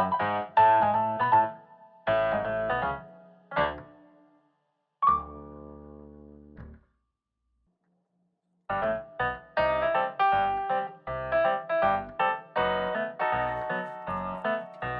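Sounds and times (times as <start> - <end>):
keyboard chords: 8.7 - 14.9.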